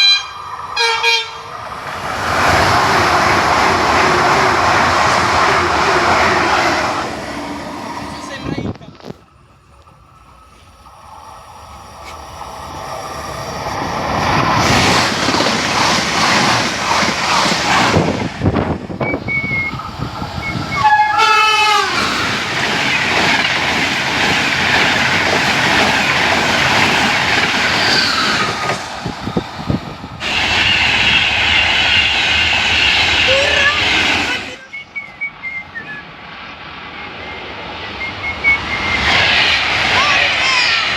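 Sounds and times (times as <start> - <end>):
train horn: 0.0 - 1.5, 20.7 - 22.1
train passing: 0.0 - 40.9.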